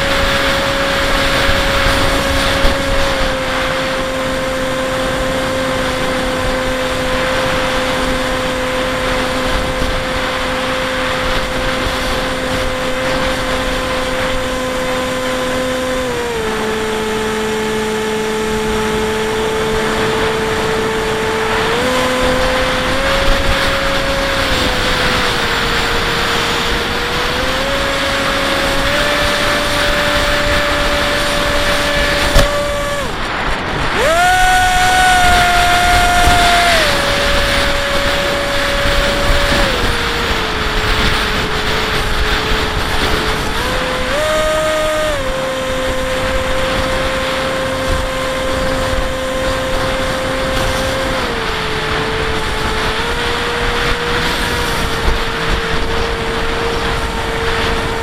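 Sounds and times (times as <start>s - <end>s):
electric motor and propeller whine: 0.0s - 58.0s
wind rushing: 19.5s - 47.2s.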